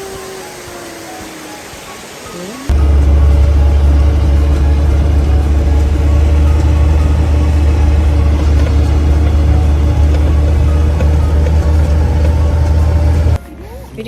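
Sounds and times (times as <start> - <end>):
vehicle engine rumble: 2.6 - 13.4.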